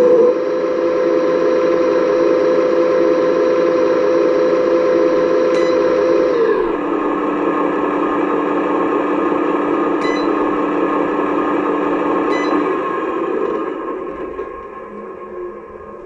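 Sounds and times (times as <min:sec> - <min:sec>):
electric motor and pump whining: 0:00.0 - 0:16.0.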